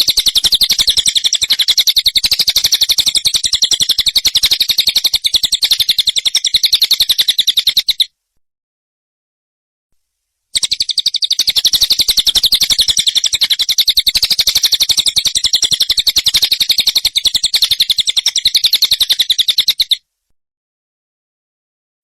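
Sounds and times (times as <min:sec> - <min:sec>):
songbird fast rattling song: 0:00.0 - 0:08.1, 0:10.6 - 0:20.0.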